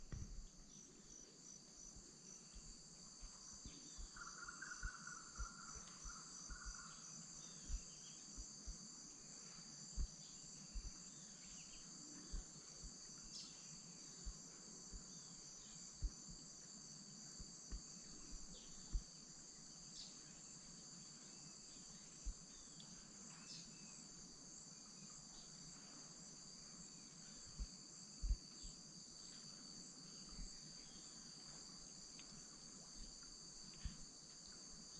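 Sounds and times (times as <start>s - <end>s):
soft low thumps: 0.0s - 0.6s, 7.6s - 8.8s, 10.0s - 11.0s, 17.4s - 19.1s
fast pulsing insect trill: 0.0s - 20.6s
insects buzzing: 0.0s - 34.9s.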